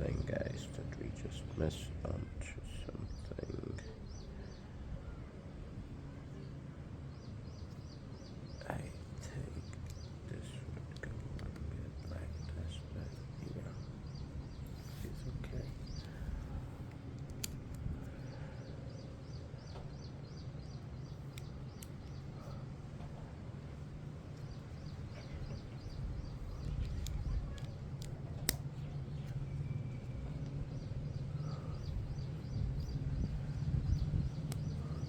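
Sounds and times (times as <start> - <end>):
low steady rumble: 0.0 - 35.0
bird chirping: 7.1 - 35.0.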